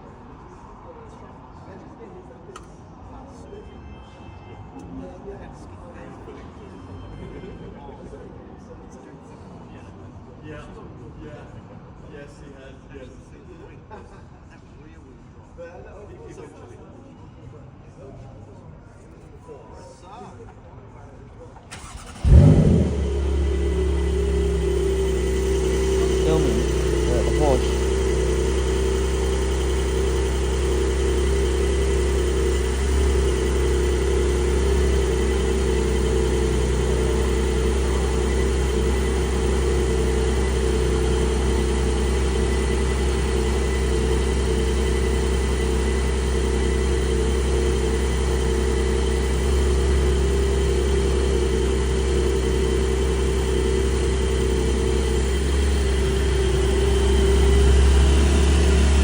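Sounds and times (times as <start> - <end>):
sports car engine idling: 21.8 - 59.0.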